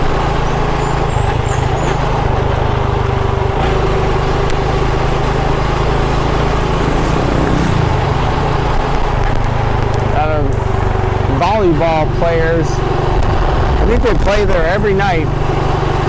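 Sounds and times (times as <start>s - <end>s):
small motorbike engine running: 0.0s - 16.0s
wind and road noise: 0.0s - 16.0s.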